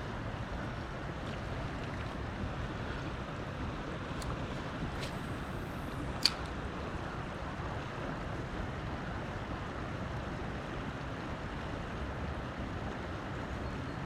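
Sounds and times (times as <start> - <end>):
river water: 0.0 - 14.0
wind: 0.0 - 14.0
sharp click: 5.0 - 6.6.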